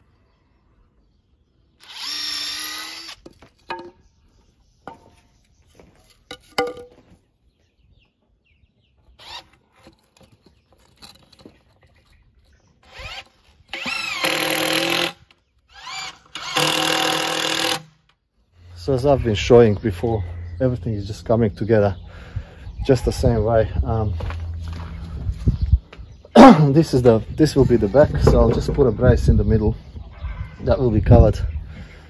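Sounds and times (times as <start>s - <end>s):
power drill running: 1.8s - 3.2s, 12.8s - 17.9s.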